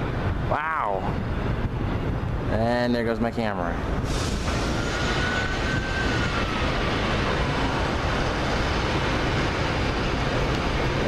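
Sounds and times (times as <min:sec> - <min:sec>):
train wheels rumbling on rail: 0:01.1 - 0:11.0
faint thin squeal: 0:04.1 - 0:06.6.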